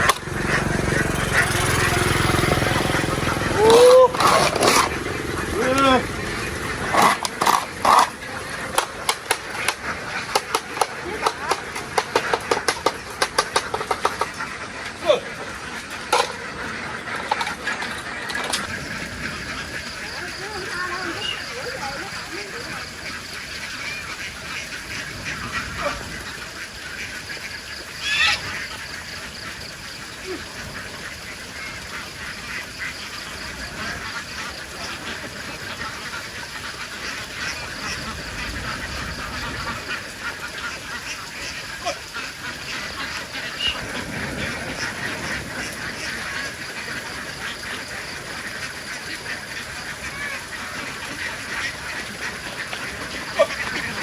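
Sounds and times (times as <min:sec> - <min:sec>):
ducks quacking: 0:00.0 - 0:54.0.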